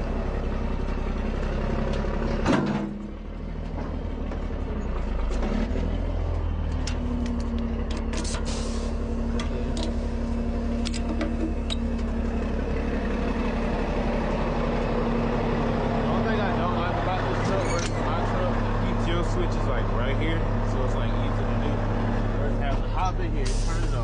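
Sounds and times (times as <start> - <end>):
diesel engine idling: 0.0 - 24.0
air hiss: 8.4 - 9.0.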